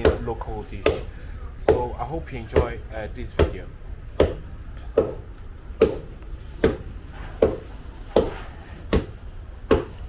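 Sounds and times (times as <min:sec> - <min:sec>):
wooden pestle pounding in mortar: 0:00.0 - 0:03.6, 0:04.2 - 0:10.0.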